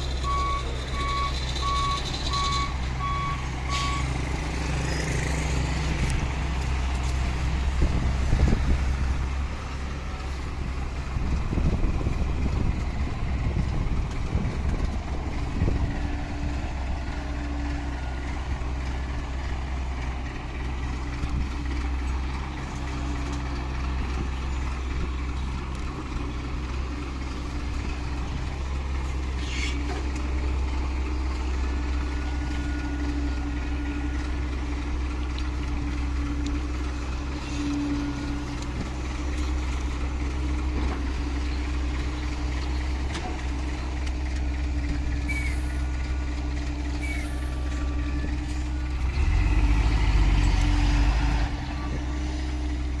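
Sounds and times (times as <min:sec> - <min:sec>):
diesel truck engine idling: 0:00.0 - 0:53.0.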